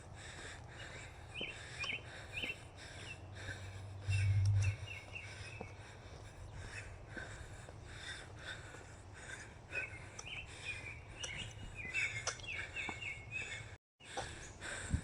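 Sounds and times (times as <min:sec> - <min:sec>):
birds chirping: 0:00.1 - 0:14.9
low steady rumble: 0:03.9 - 0:05.1
running footsteps: 0:05.6 - 0:14.9.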